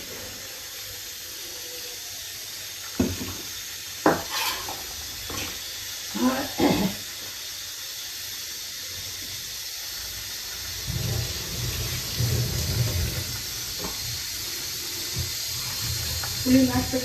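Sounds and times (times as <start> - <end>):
pressure cooker hissing: 0.0 - 17.0
low uneven rumble: 10.7 - 14.3.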